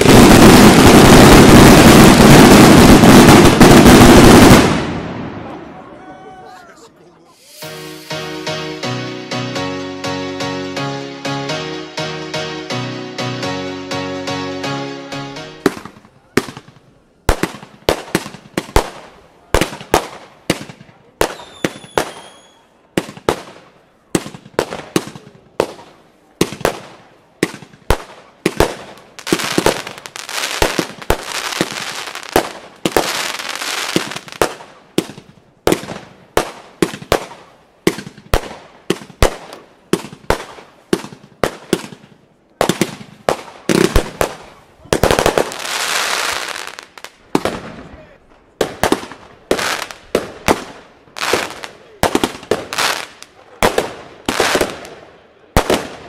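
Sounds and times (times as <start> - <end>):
fireworks launch bangs and bursts: 0.0 - 5.8, 15.1 - 56.0
fireworks crackling: 0.0 - 56.0.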